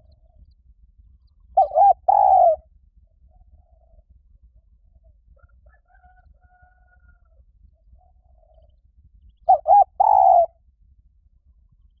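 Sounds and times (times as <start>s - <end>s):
dove cooing: 1.6s - 2.7s, 9.5s - 10.6s.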